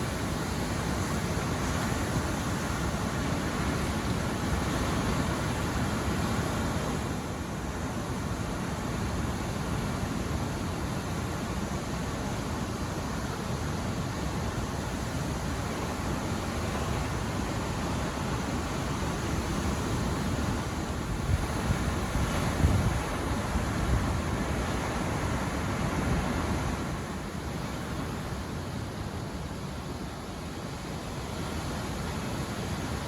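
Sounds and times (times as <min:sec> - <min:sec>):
wind buffeting microphone: 0:21.0 - 0:24.5.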